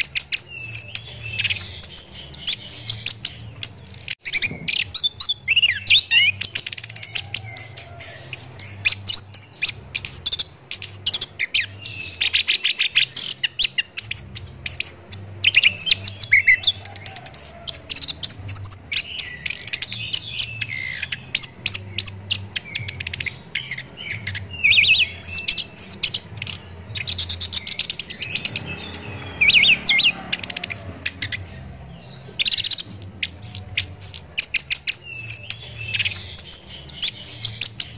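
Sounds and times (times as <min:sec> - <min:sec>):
thrush singing: 0:00.0 - 0:37.9.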